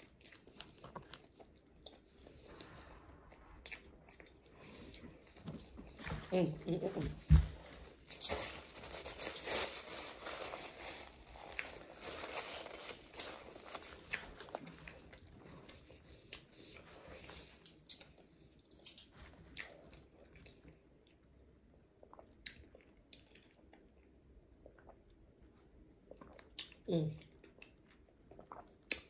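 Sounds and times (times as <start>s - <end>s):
wet crunching chewing: 8.1s - 20.6s.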